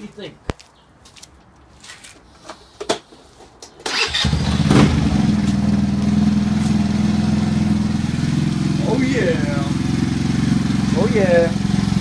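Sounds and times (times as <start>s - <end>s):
scooter engine starting and idling: 3.8s - 12.0s.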